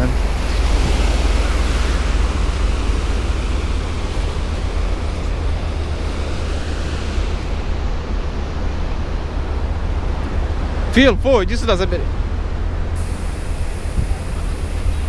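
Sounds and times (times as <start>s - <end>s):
sea surf rushing: 0.0s - 3.9s, 13.0s - 15.0s
wind rumbling on microphone: 0.0s - 10.4s, 12.8s - 15.0s.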